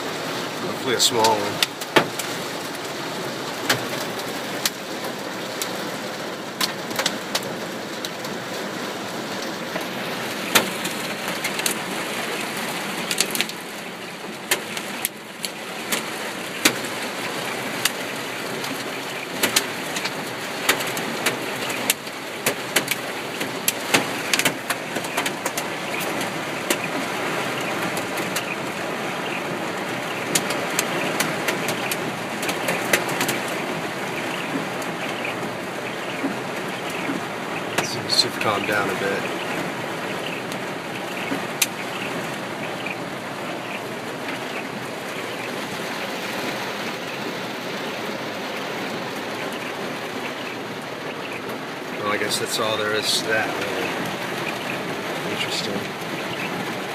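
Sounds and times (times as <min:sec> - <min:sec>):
hailstones clicking on car: 0:00.0 - 0:56.9
rain pattering on a car: 0:00.0 - 0:56.9.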